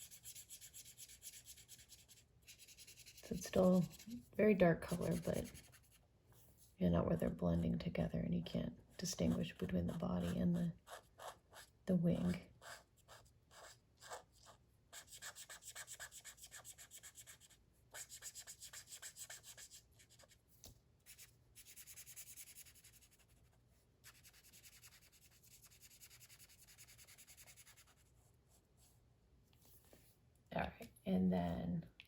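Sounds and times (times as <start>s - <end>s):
colouring tool shading on paper: 0.0s - 6.0s, 9.0s - 11.8s, 12.5s - 20.3s, 21.0s - 23.4s, 24.0s - 28.2s.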